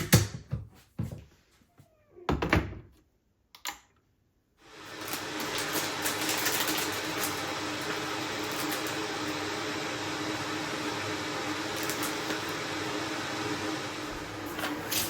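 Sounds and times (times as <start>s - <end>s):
electric appliance humming: 4.6s - 15.0s.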